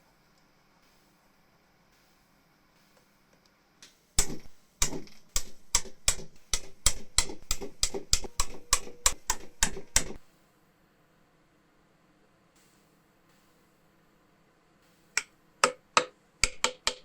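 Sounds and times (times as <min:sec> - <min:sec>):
rapid sharp knocks: 0:04.2 - 0:10.2, 0:15.6 - 0:17.0.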